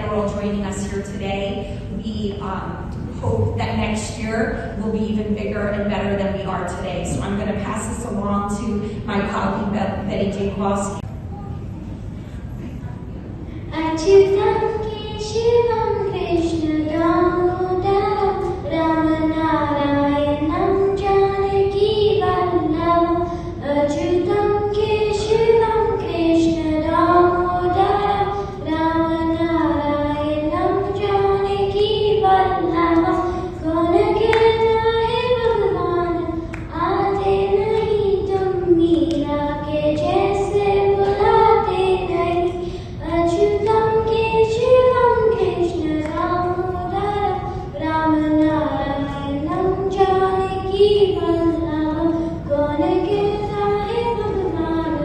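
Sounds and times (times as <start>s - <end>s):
young voice singing: 13.7s - 55.0s.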